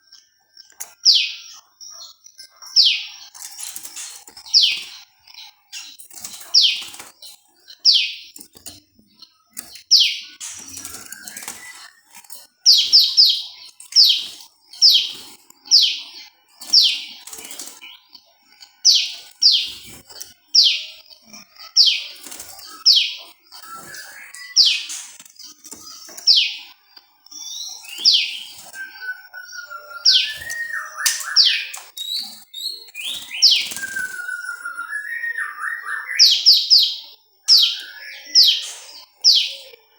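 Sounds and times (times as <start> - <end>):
bird warbling and chatter: 0.6 - 39.9
songbird sharp downward calls: 27.5 - 32.2.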